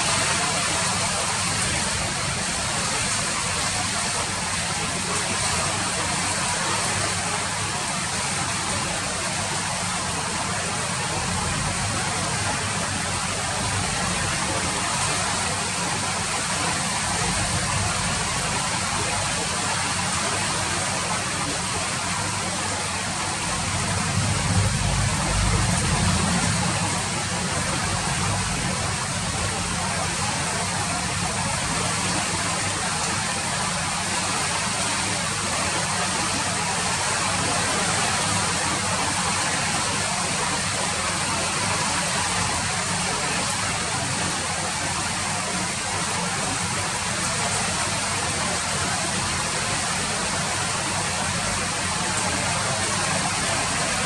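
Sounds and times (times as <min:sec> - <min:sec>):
rain falling: 0:00.0 - 0:54.0
low rumble: 0:23.6 - 0:29.8.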